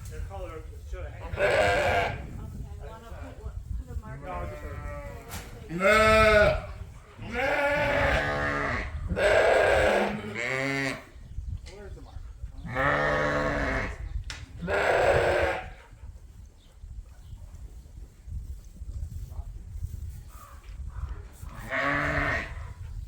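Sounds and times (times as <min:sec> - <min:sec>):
sheep bleating: 0:01.3 - 0:02.2, 0:07.2 - 0:11.0, 0:14.6 - 0:15.7.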